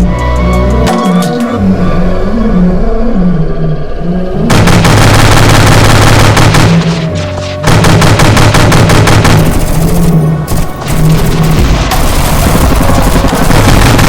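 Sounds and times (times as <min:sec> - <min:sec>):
machine-gun fire: 0:04.5 - 0:14.0.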